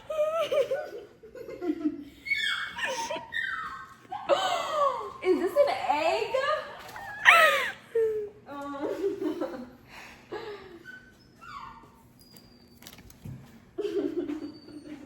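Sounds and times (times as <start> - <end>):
young women laughing: 0.0 - 3.3, 6.7 - 10.8, 13.8 - 15.0.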